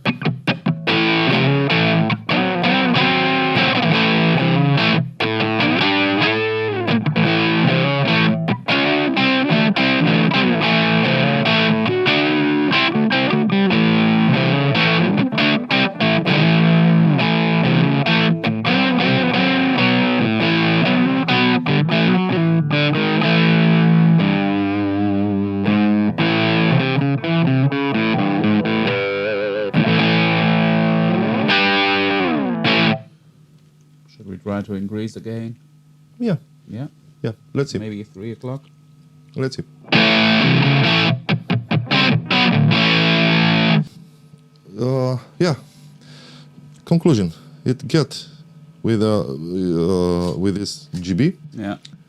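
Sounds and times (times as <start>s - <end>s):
distorted electric guitar riffs: 0.0s - 33.2s, 39.8s - 44.0s.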